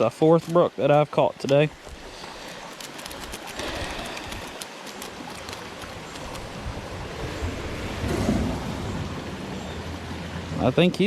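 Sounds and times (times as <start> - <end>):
creek water flowing: 0.0 - 11.0
wind rumble on microphone: 5.4 - 10.6.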